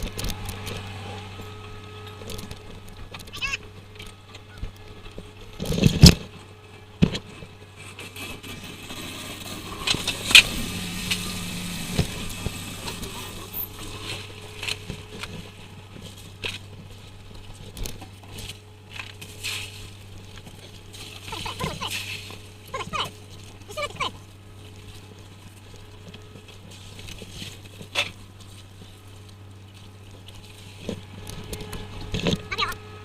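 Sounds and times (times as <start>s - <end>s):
boat engine droning: 0.0s - 33.0s.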